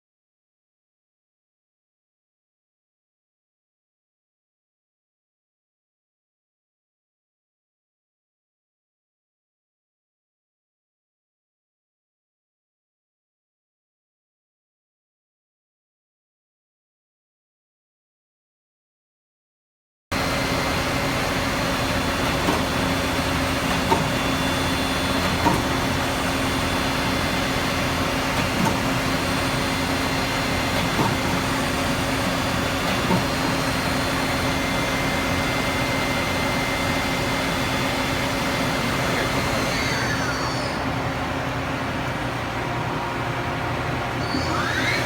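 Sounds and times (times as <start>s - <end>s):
lathe humming and whining: 20.2s - 45.0s.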